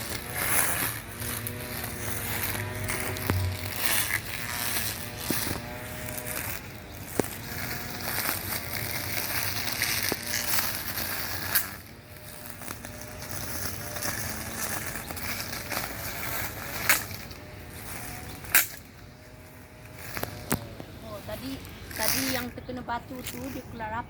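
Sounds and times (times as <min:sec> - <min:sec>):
sharp cracks: 0:00.0 - 0:19.0
brush cutter cutting grass: 0:00.0 - 0:24.0.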